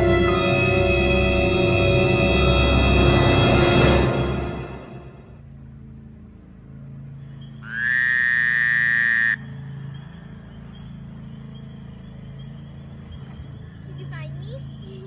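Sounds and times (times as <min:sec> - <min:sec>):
high electronic tone sliding up: 0:00.0 - 0:05.3
low droning background music: 0:00.0 - 0:05.6.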